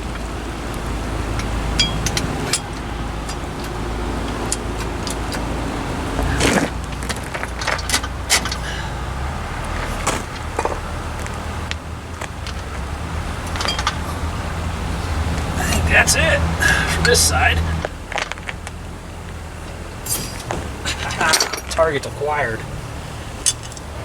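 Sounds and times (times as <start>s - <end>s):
steady low rumble: 0.0s - 24.0s
tools and metal parts clinking: 1.3s - 5.5s, 6.4s - 8.7s, 13.4s - 14.3s, 20.0s - 22.1s, 23.4s - 23.9s
metal scrape: 20.0s - 21.8s.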